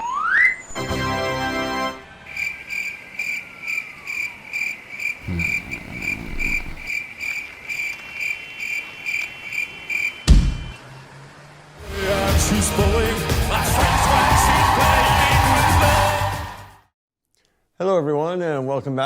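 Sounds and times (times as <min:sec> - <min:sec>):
crickets chirping: 0:04.5 - 0:07.0.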